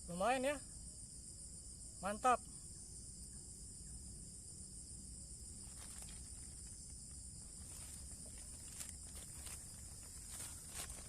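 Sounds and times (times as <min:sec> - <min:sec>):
high-pitched insect chorus: 0:00.0 - 0:11.0
faint clicks and rustles: 0:05.6 - 0:11.0.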